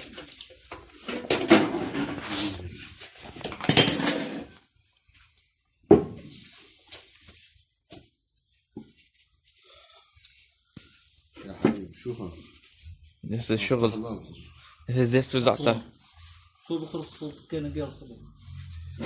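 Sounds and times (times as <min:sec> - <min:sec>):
metal tools clattering and scraping: 0:03.2 - 0:04.6, 0:11.9 - 0:16.6.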